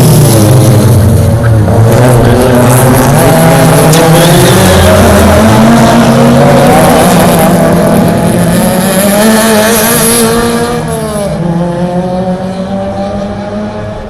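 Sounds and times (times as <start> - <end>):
racing car engines revving: 0.0 - 14.0.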